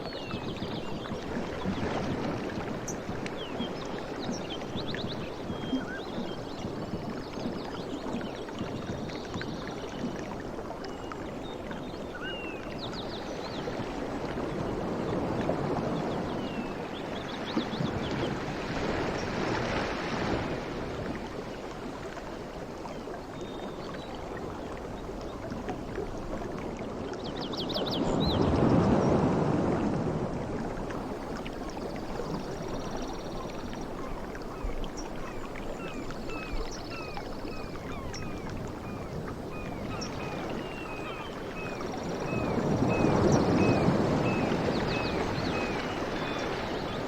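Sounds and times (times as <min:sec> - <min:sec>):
sea waves washing in: 0:28.4 - 0:47.0.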